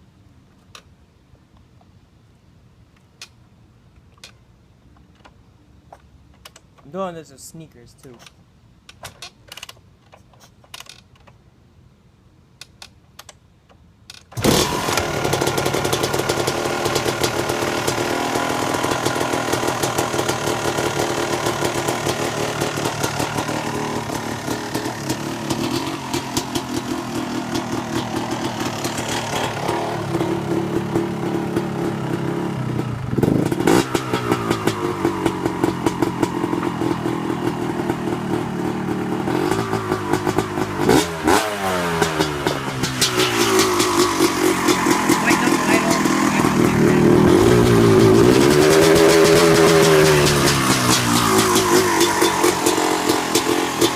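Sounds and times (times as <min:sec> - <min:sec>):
dirt bike engine starting and revving: 0:14.3 - 0:53.9.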